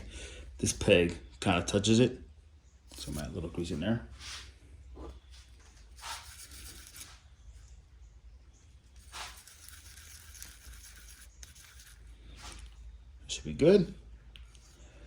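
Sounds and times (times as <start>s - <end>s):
hand rustling scrapes: 5.3s - 7.2s, 8.9s - 12.8s.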